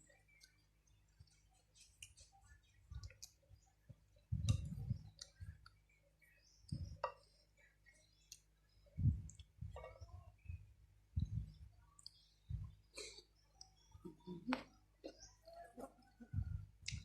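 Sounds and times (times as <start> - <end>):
soft low thuds: 4.3 - 5.6, 9.0 - 11.7, 16.3 - 17.0.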